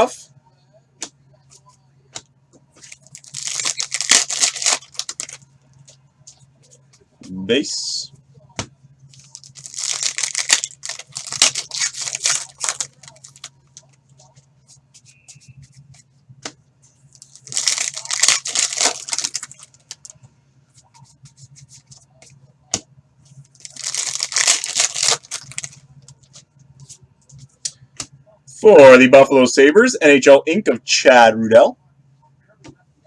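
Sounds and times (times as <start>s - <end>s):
foil wrappers tearing and crinkling: 2.9s - 5.4s, 9.1s - 13.5s, 17.2s - 20.1s, 23.6s - 25.8s.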